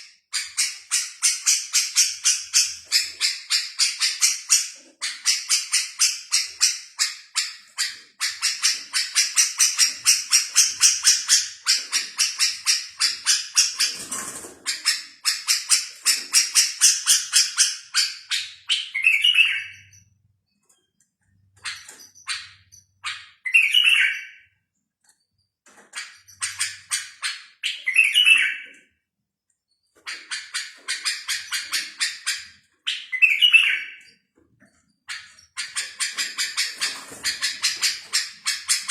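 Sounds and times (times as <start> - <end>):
songbird chirping: 14.7 - 29.0, 29.7 - 38.9.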